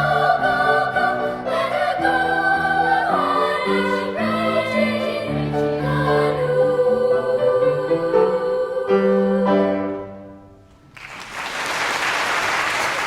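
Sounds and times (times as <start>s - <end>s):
audience applauding: 10.9s - 13.0s.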